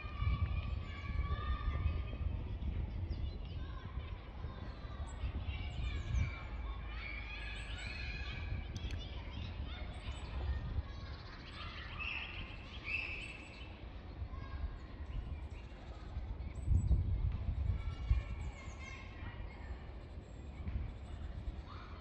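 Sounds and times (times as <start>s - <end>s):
birds chirping and calling: 7.2s - 14.2s.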